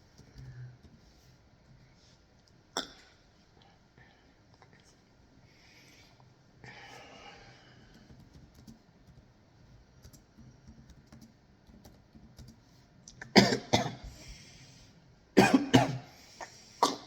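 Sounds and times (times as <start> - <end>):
typing on a keyboard: 0.0 - 1.0, 7.9 - 12.6
person coughing: 13.2 - 14.1, 15.4 - 16.2, 16.8 - 17.0.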